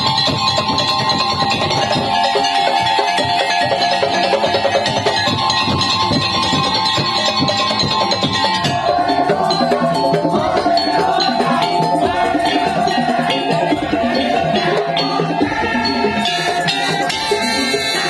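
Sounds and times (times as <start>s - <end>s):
fast rhythmic percussion: 0.0s - 18.0s
sustained melody line: 8.2s - 18.0s.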